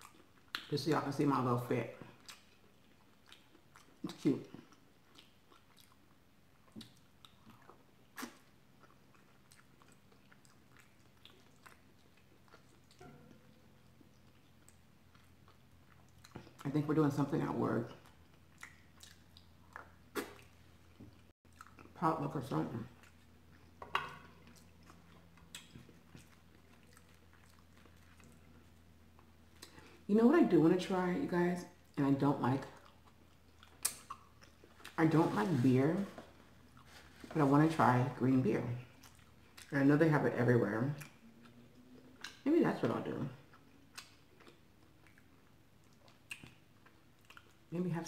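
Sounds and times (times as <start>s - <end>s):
person chewing food: 0.0s - 0.7s, 2.0s - 16.7s, 17.9s - 22.0s, 22.9s - 30.1s, 32.7s - 35.0s, 36.2s - 37.3s, 38.9s - 39.7s, 41.0s - 42.4s, 43.4s - 47.7s
mouth smacks: 18.6s - 20.5s
wet mouth smack: 20.1s - 20.4s.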